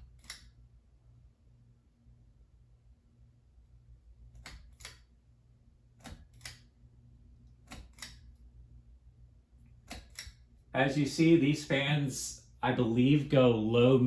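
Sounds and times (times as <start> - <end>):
ceiling fan humming: 0.0 - 14.0
ceiling fan light clicks: 6.0 - 6.8, 7.5 - 8.4, 9.8 - 10.5.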